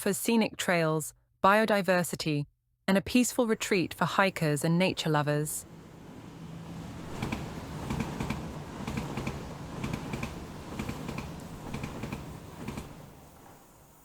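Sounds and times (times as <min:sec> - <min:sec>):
rhythmic clicking: 0:07.1 - 0:13.1.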